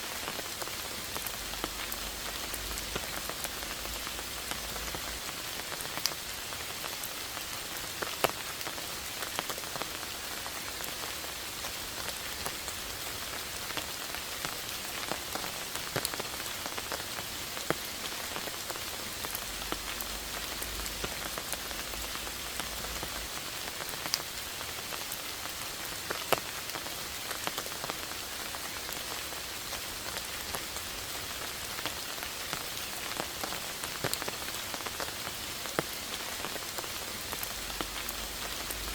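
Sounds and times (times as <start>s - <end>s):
rain pattering on leaves: 0.0s - 38.9s.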